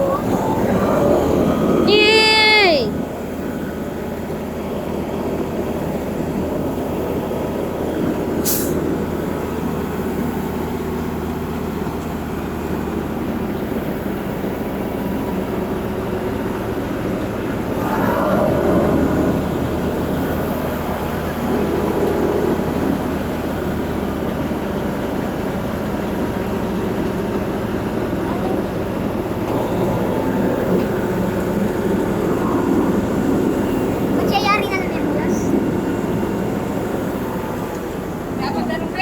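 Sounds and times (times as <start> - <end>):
diesel truck engine running: 0.0 - 39.0
sharp air hiss: 8.4 - 8.8.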